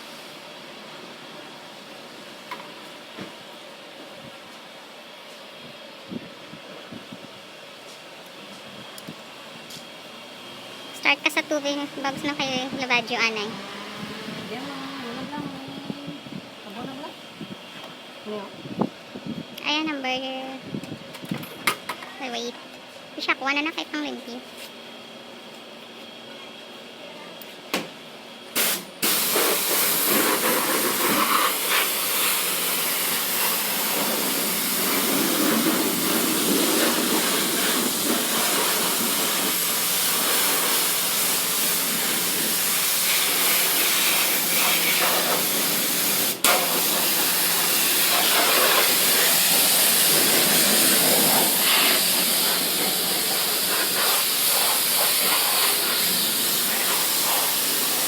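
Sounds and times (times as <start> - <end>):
high-pressure water spray hiss: 28.6 - 58.0.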